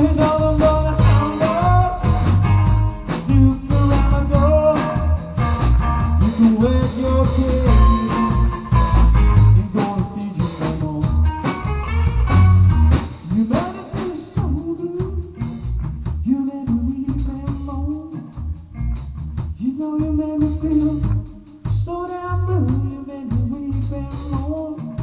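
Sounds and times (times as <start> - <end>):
sliding electric guitar notes: 0.0 - 10.0, 11.1 - 13.9
bass line: 0.0 - 25.0
steady drum beat: 0.0 - 25.0.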